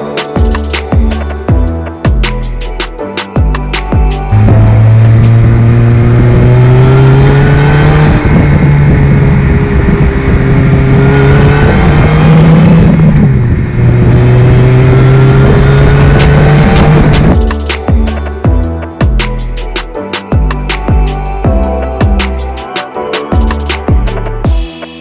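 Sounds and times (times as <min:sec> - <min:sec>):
supercharged car engine under power: 0:04.3 - 0:17.4.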